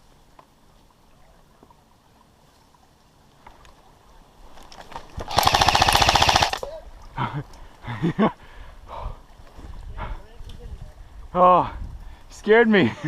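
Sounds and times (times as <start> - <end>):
airsoft gun full-auto burst: 5.3 - 6.6.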